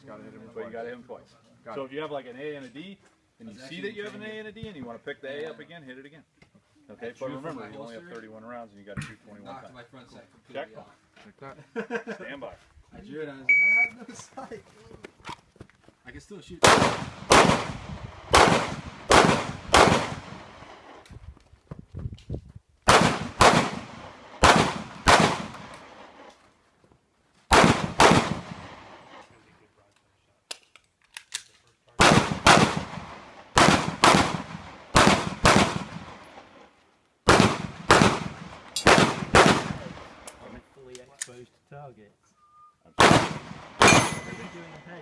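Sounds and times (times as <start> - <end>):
pistol shots with echo: 16.6 - 20.6, 22.9 - 25.8, 27.5 - 29.0, 32.0 - 36.2, 37.3 - 40.2, 43.0 - 44.8.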